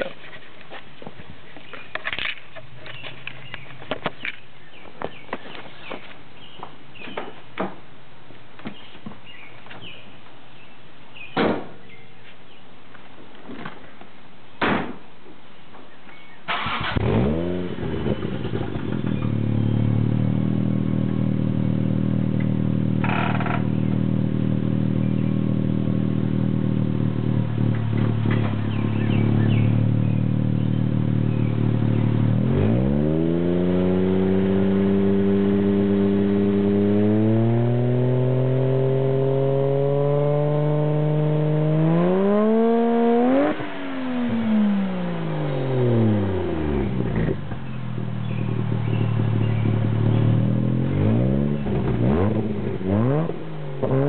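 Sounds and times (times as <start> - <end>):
car engine starting and revving: 16.5 - 54.0.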